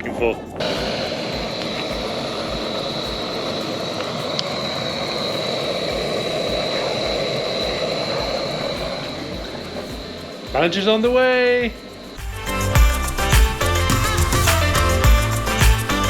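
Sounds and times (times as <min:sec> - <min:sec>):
gas stove burner hissing: 0:00.6 - 0:11.7.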